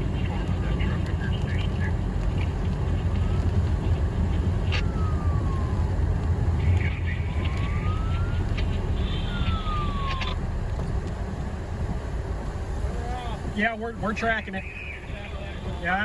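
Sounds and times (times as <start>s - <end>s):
vehicle road noise rumble: 0.0s - 16.0s
siren wailing: 3.0s - 11.7s.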